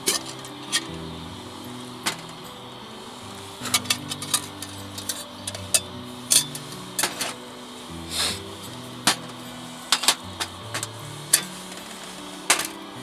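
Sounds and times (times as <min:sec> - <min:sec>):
cookware and utensils clinking: 0:00.0 - 0:01.0, 0:03.6 - 0:07.4
quiet background music: 0:00.0 - 0:13.0.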